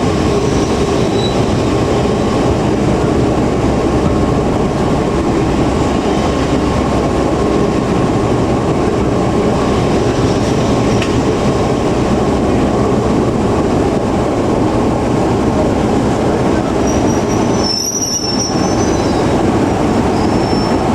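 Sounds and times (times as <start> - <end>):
train wheels rumbling: 0.0 - 20.9
high-pitched wheel squeal: 0.5 - 1.5, 16.8 - 19.4, 20.1 - 20.8.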